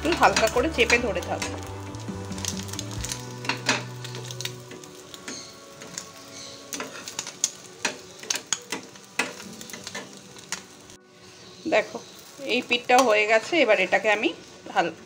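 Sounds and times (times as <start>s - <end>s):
bread sizzling in a pan: 0.0s - 15.0s
metal spatula scraping a pan: 3.0s - 12.3s.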